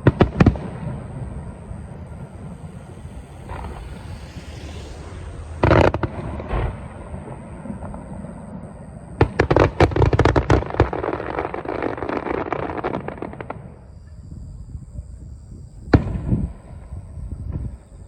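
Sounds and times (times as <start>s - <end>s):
fireworks crackling: 0.0s - 14.0s
firework bangs: 0.0s - 14.2s, 15.8s - 17.8s.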